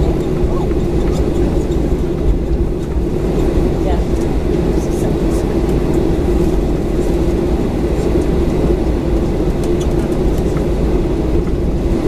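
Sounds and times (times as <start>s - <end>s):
airplane cabin rumble: 0.0s - 12.0s
constant hum: 0.0s - 12.0s.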